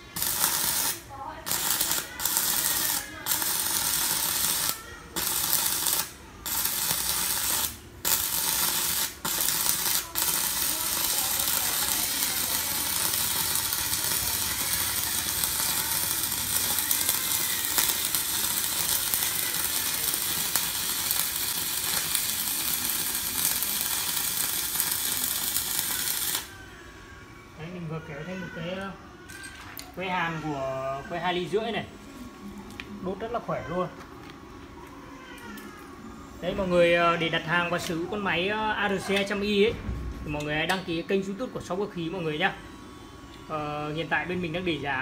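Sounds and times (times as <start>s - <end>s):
welding arc sizzling: 0.0s - 26.6s.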